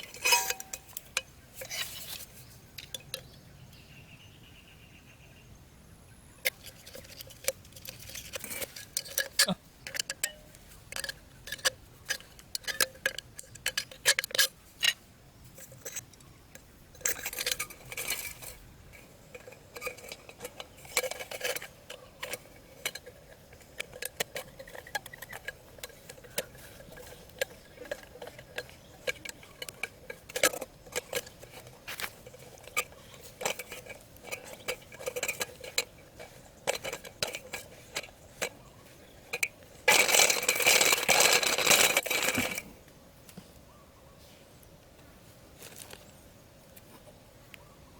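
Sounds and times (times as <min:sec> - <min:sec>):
small hard objects clicking: 0:06.5 - 0:15.0, 0:15.6 - 0:42.6.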